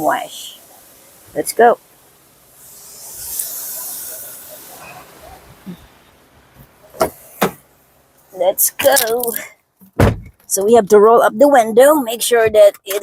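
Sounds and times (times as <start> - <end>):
car wash equipment hissing: 0.0 - 10.2
sharp knocks: 9.8 - 10.4.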